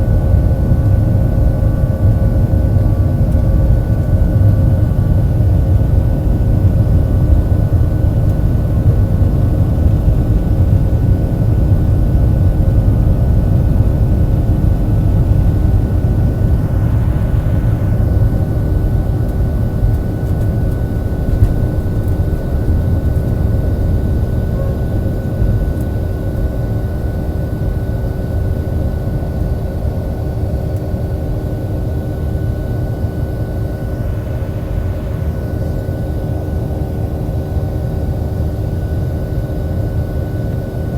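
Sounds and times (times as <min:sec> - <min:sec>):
fan hum: 0:00.0 - 0:28.9, 0:30.8 - 0:38.4
jet engine roar in cabin: 0:00.0 - 0:40.9.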